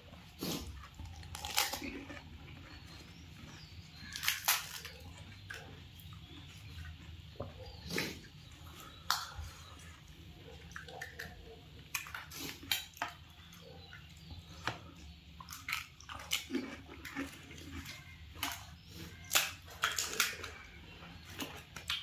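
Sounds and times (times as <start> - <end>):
crisp shells crunching: 0.9 - 5.7, 15.5 - 22.0.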